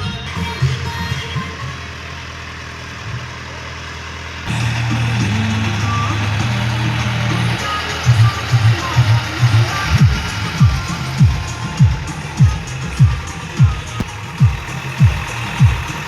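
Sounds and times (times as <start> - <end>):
deep bass tone: 4.5 - 16.0.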